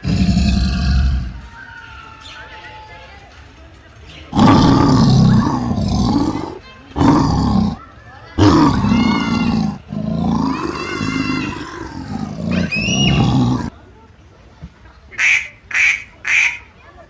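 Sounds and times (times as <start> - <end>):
large wild animal calling: 0.0 - 1.6, 4.4 - 7.8, 8.4 - 13.7.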